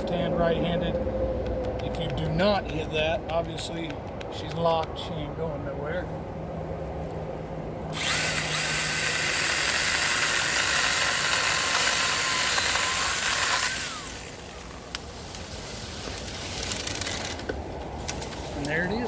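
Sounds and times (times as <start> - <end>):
electric chainsaw whine: 7.9 - 14.9.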